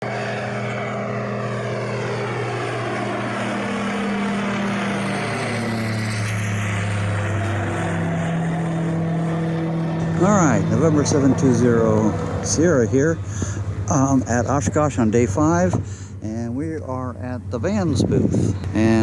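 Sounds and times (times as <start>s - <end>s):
propeller airplane flying overhead: 0.0s - 19.0s.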